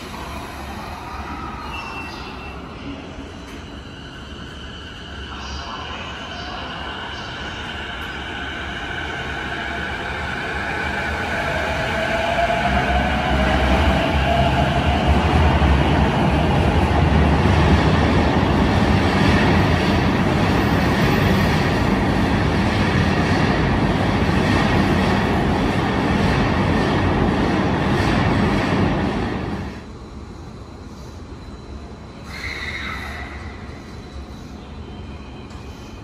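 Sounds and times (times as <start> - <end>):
train wheels rumbling on rail: 6.9 - 30.0.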